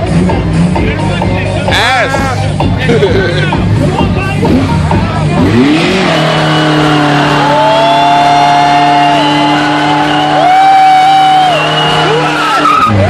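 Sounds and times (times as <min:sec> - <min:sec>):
car engine at high revs: 0:02.4 - 0:13.0
tyres squealing: 0:11.6 - 0:13.0.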